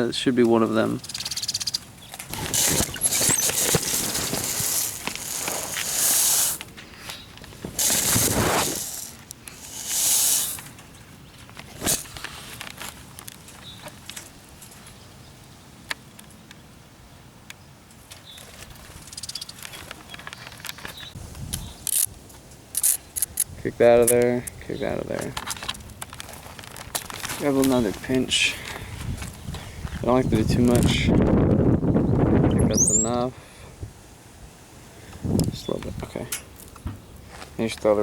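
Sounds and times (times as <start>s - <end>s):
rustling and scraping: 2.0s - 15.0s, 25.1s - 30.9s.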